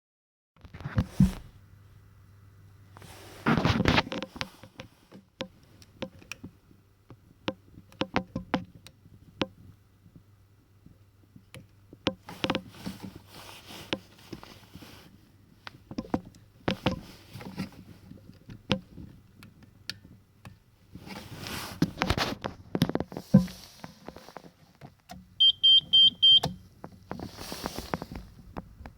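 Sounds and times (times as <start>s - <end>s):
rustling handling noise: 0.6s - 1.7s, 2.9s - 6.8s, 12.2s - 28.9s
low steady hum: 0.6s - 28.9s
push buttons clicking: 25.1s - 26.6s.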